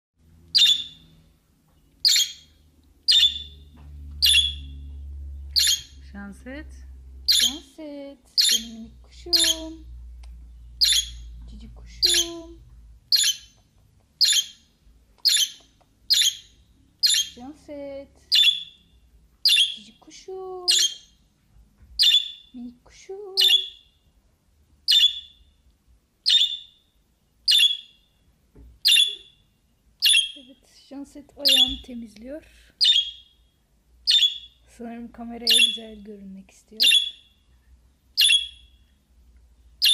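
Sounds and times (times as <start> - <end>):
budgerigar harsh chirps: 0.5 - 1.1, 2.0 - 3.6, 4.2 - 4.7, 5.6 - 6.0, 7.3 - 7.6, 8.4 - 9.8, 10.8 - 11.3, 13.1 - 13.6, 14.2 - 17.4, 18.3 - 19.8, 20.7 - 21.2, 22.0 - 22.5, 23.4 - 23.9, 24.9 - 25.4, 26.2 - 26.8, 27.5 - 28.1, 28.8 - 29.4, 30.0 - 30.4, 31.4 - 31.8, 32.8 - 33.4, 34.0 - 34.6, 35.5 - 35.9, 36.8 - 37.3, 38.2 - 38.8.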